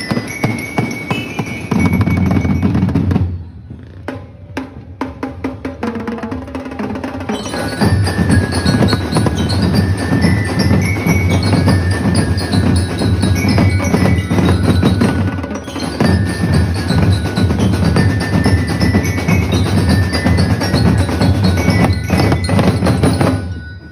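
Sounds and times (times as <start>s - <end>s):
high bell-like melody: 0.0s - 3.4s, 7.2s - 23.9s
fast drumming: 5.0s - 23.6s.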